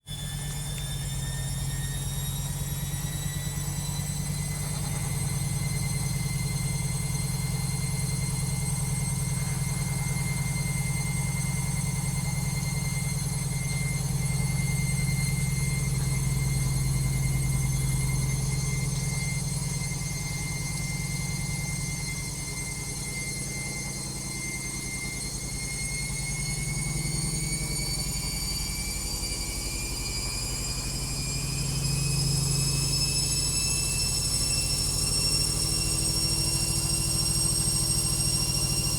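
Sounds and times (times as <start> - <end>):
washing machine motor whine: 0.0 - 38.9
washing machine spinning: 25.6 - 38.9.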